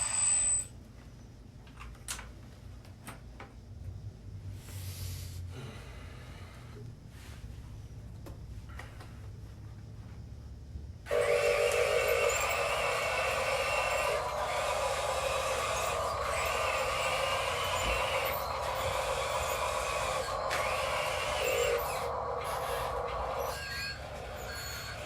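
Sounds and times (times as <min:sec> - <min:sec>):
small electric motor whining: 0:00.0 - 0:00.7, 0:11.1 - 0:25.0.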